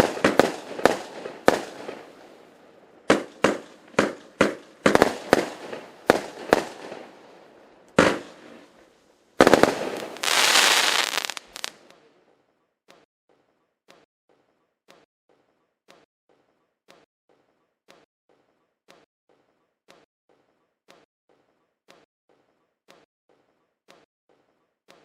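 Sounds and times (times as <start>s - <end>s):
fireworks bangs: 0.0s - 11.9s
fireworks crackling: 0.0s - 11.9s.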